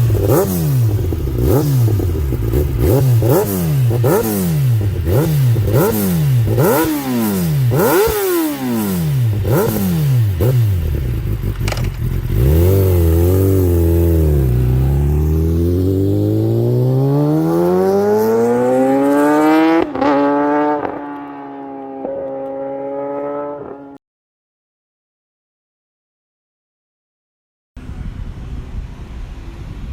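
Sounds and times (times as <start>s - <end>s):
motorcycle engine revving: 0.0s - 24.0s
exhaust crackling pops: 11.4s - 12.3s.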